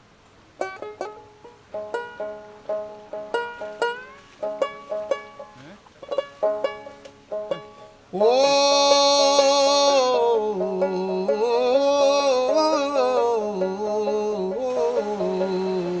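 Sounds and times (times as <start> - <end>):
solo voice singing: 8.1 - 16.0.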